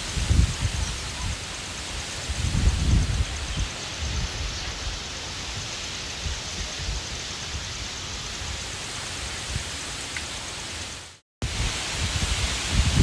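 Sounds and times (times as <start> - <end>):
wind buffeting microphone: 0.0 - 5.0, 11.4 - 13.0
wind rushing: 0.0 - 5.0, 11.4 - 13.0
light rain: 0.0 - 13.0.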